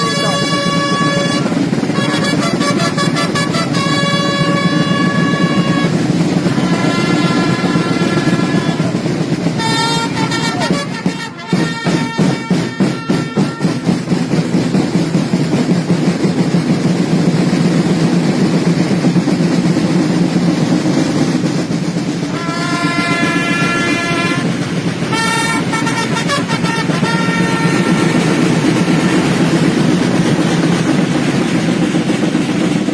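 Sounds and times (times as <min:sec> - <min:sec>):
trumpets sounding held notes: 0:00.0 - 0:14.4, 0:22.2 - 0:30.9
crowd noise: 0:00.0 - 0:32.9
rapid drum roll: 0:00.0 - 0:32.9.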